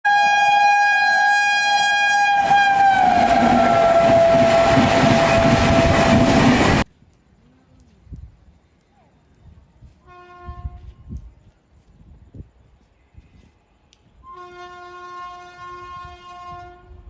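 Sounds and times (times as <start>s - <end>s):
locomotive horn chord: 0.1s - 6.5s, 14.2s - 16.9s
train rumble: 2.2s - 6.9s.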